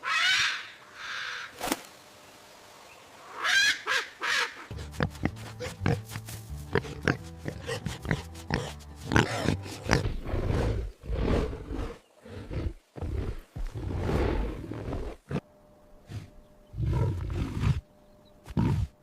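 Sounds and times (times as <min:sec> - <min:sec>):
big cat roaring and growling: 0:16.7 - 0:17.8.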